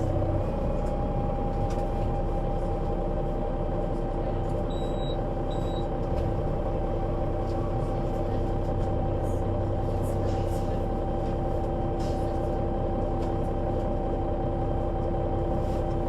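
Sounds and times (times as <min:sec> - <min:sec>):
city bus engine whine: 0:00.0 - 0:16.0.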